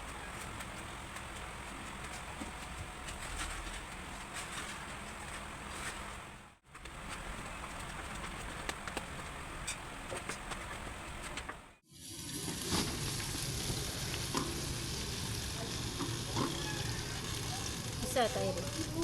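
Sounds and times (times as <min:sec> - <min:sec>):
food sizzling in oil: 0:11.9 - 0:19.0.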